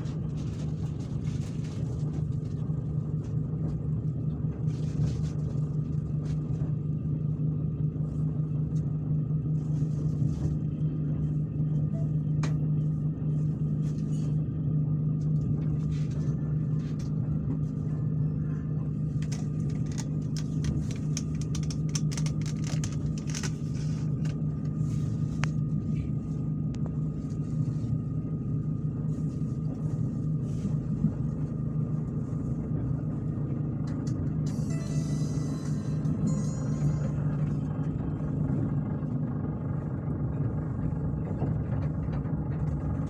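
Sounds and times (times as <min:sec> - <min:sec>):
low hum: 0:00.0 - 0:43.0
moving train rumble: 0:00.0 - 0:43.0
faint clicks and rattles: 0:19.1 - 0:24.8.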